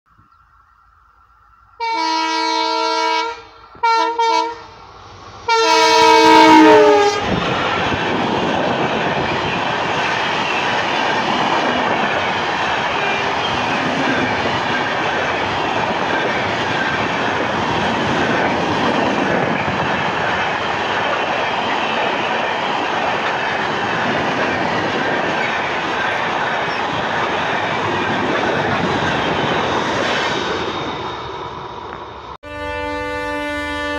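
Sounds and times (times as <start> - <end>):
locomotive horn blasts: 1.8 - 4.7, 5.5 - 7.3, 32.4 - 33.9
train wheels rumbling on rails: 2.7 - 32.4.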